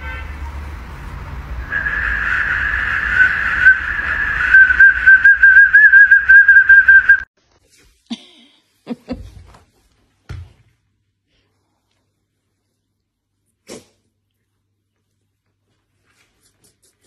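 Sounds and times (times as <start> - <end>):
shrill plastic whistle trilling: 1.6 - 7.3.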